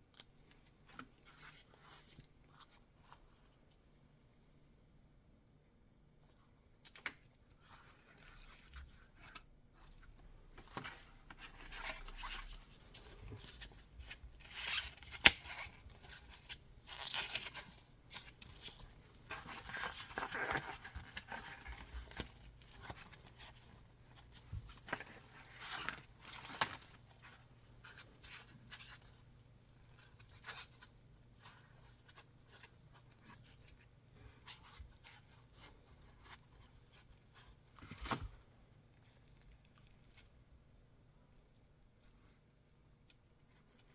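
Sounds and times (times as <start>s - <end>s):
packaging rustling and tearing: 18.2s - 23.4s.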